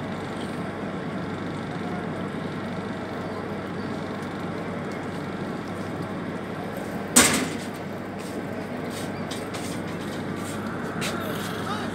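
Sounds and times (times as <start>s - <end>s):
passenger train running: 0.0s - 11.9s.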